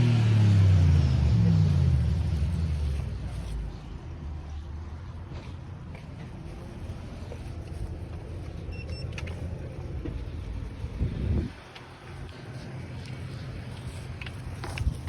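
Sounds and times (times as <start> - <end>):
road noise: 0.0 - 15.0
wind rumbling over microphone: 9.7 - 15.0.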